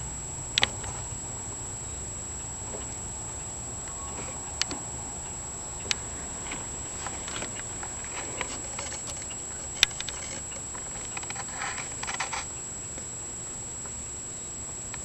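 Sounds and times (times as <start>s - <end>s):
faint high-pitched whine: 0.0s - 15.0s
sharp click: 0.6s - 1.1s
light irregular ticking and pattering: 2.4s - 13.1s.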